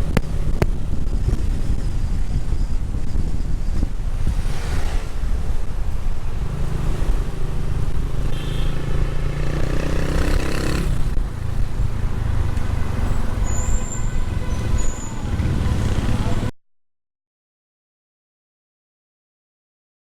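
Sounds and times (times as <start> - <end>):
motorcycle engine: 0.0 - 16.5
road traffic noise: 0.0 - 16.5
wind on microphone: 0.0 - 16.5
brief high squeal: 13.4 - 15.3.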